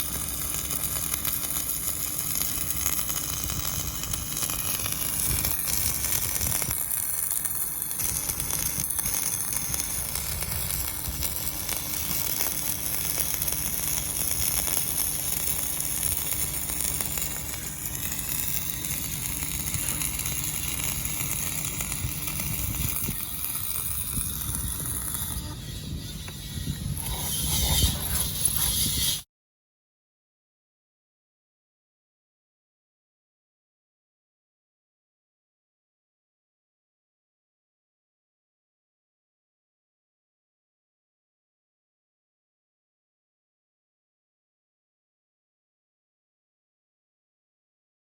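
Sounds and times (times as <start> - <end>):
welding arc crackling: 0.0 - 29.2.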